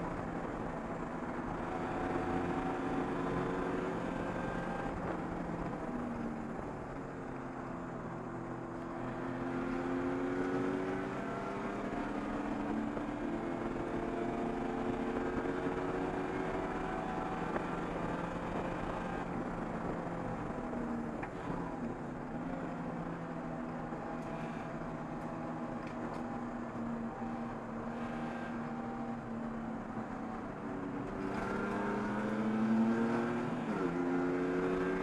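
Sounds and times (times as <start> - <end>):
race car engine revving: 29.9 - 35.0.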